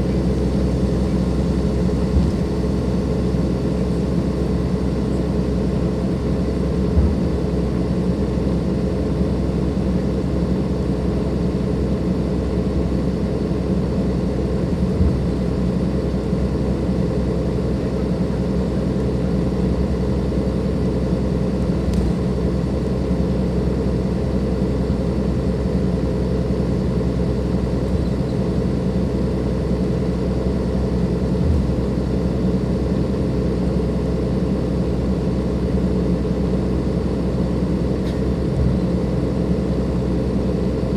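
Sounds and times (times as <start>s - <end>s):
bus diesel engine running: 0.0s - 40.9s
low thumps: 2.0s - 2.6s, 6.8s - 7.5s, 31.2s - 31.9s.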